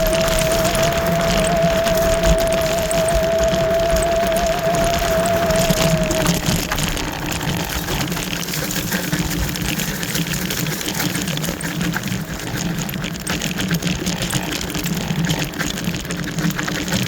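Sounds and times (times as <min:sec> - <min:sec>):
electric scooter motor hum: 0:00.0 - 0:11.3
tyres crackling over ground: 0:00.0 - 0:17.0.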